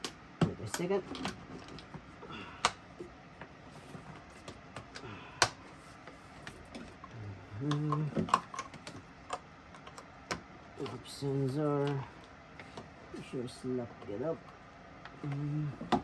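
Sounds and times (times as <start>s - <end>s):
man's voice murmuring: 7.1s - 8.2s, 15.2s - 15.9s.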